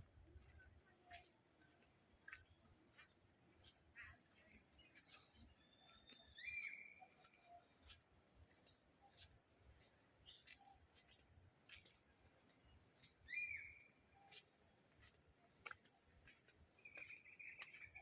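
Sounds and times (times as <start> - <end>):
faint bird chirps: 0.4 - 14.6, 16.8 - 18.0
high insect hiss: 5.4 - 18.0
bird whistled call: 5.9 - 7.0, 13.3 - 13.9.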